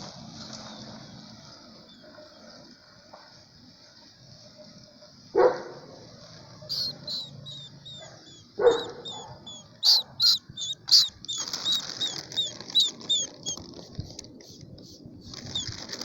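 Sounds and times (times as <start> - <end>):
steady high hiss: 2.6 - 15.4
dog barking: 5.4 - 5.9, 6.6 - 10.4
high falling chirps and squeaks: 6.7 - 13.7, 14.5 - 15.8.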